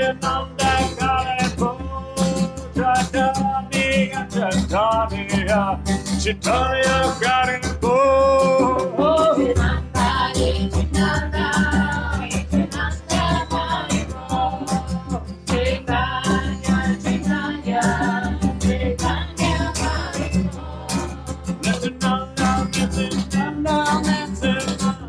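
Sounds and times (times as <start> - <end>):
acoustic guitar strumming: 0.0 - 25.0
voices singing a chant: 6.4 - 25.0.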